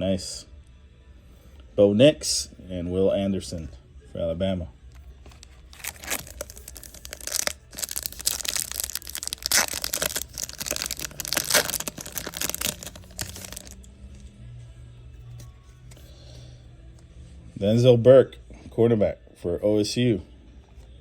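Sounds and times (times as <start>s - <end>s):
foil wrapper tearing and crinkling: 5.3s - 13.8s.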